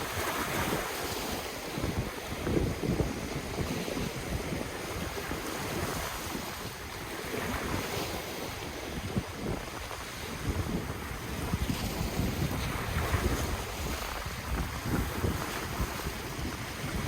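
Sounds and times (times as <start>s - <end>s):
ocean surf: 0.0s - 17.0s
wind buffeting microphone: 0.0s - 17.0s.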